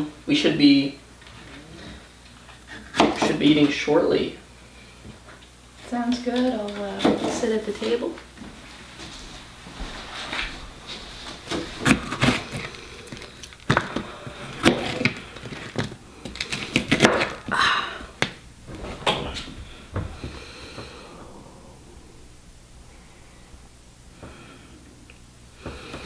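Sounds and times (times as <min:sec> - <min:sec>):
knife chopping on cutting board: 0:02.9 - 0:03.4, 0:13.7 - 0:17.4.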